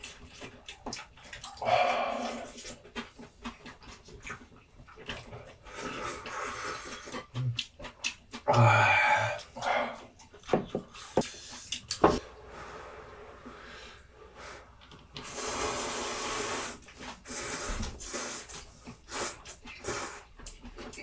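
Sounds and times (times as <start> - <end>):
chewing with wet mouth clicks: 0.0 - 8.5, 9.4 - 12.0, 18.5 - 21.0
noodle slurp: 1.4 - 3.2, 15.2 - 20.3.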